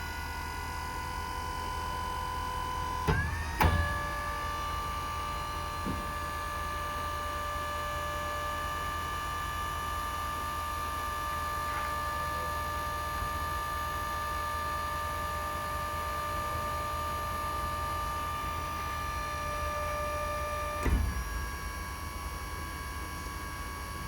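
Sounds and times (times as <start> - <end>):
crane pump motor whining: 0.0 - 24.0
crane clunk: 3.0 - 6.5, 20.6 - 21.6.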